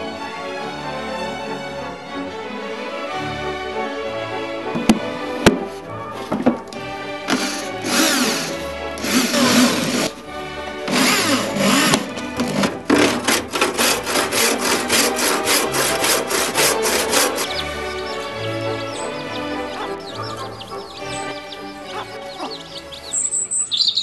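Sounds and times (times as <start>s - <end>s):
background music: 0.0s - 24.0s
saw cutting wood: 5.6s - 23.2s.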